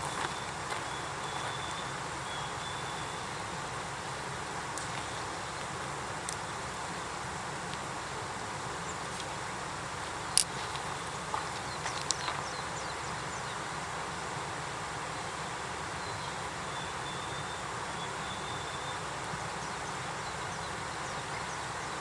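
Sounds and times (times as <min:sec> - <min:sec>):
campfire crackling: 0:00.0 - 0:12.9
steady outdoor hiss: 0:00.0 - 0:22.0.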